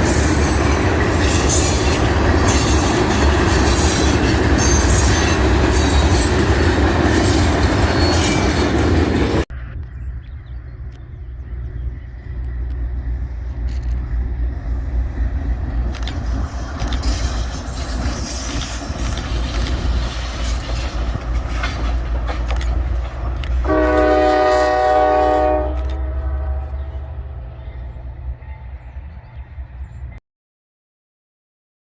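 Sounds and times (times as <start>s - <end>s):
train rumbling by: 0.0s - 30.2s
locomotive air horn blast: 23.6s - 27.4s.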